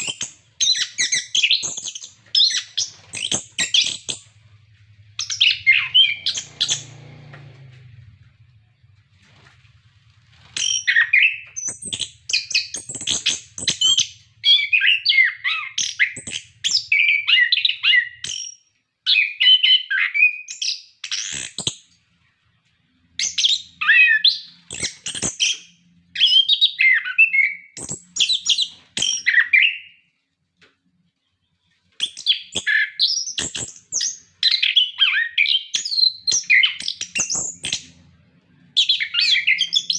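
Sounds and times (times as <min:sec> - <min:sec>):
thrush singing whistled phrases: 0:05.2 - 0:06.9.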